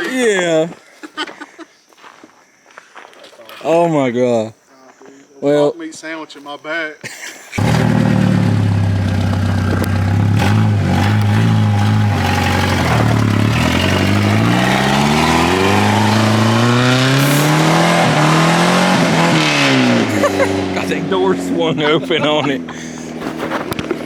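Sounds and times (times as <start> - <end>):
turbocharged engine accelerating: 7.6 - 24.0.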